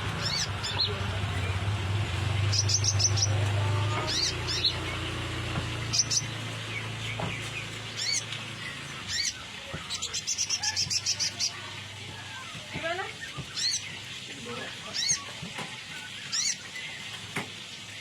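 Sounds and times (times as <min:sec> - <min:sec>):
bird chirping: 0:00.2 - 0:01.6, 0:02.2 - 0:11.6.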